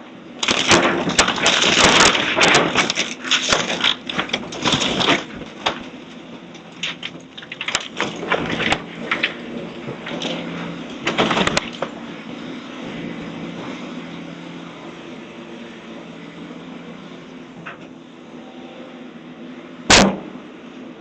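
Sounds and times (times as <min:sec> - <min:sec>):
machine engine hum: 0:00.0 - 0:21.0
timber cracking and splintering: 0:00.4 - 0:12.0, 0:19.9 - 0:20.4.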